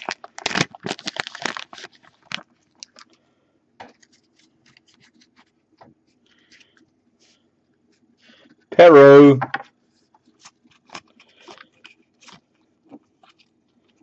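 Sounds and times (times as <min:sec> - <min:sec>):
trading cards clicking and rustling: 0:09.5 - 0:14.0.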